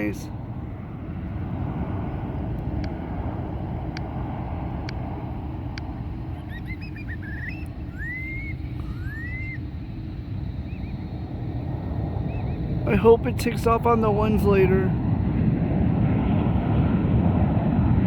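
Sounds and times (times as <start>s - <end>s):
jet airliner engines rumbling: 0.0s - 18.0s
bird whistling: 6.3s - 9.7s, 10.6s - 11.1s, 12.2s - 12.7s.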